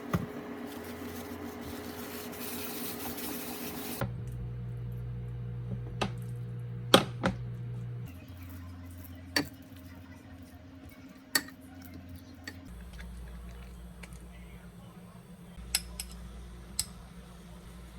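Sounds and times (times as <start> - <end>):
steady low hum: 4.0 - 17.9.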